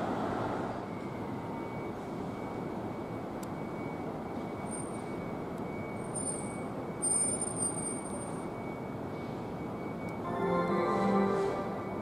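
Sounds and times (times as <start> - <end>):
electric train running: 10.2 - 12.0.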